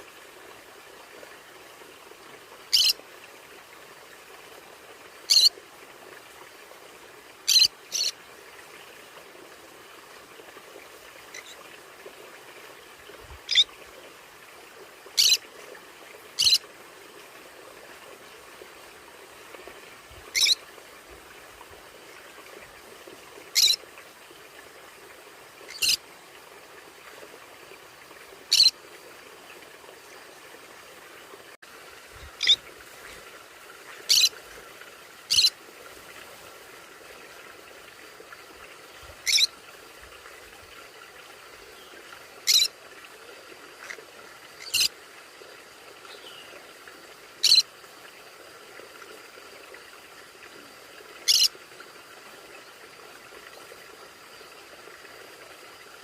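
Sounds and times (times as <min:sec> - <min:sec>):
parrot squawks: 0:02.7 - 0:03.0, 0:05.3 - 0:05.5, 0:15.2 - 0:15.4, 0:20.4 - 0:20.6, 0:34.1 - 0:34.3, 0:35.3 - 0:35.5, 0:39.3 - 0:39.5, 0:42.5 - 0:42.7, 0:47.4 - 0:47.6.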